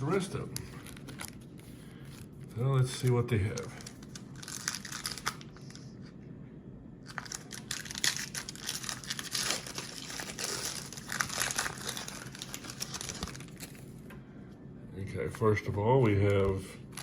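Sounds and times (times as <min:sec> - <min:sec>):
card pack wrapper crinkling and tearing: 0:00.0 - 0:05.9, 0:07.0 - 0:13.8, 0:16.3 - 0:17.0.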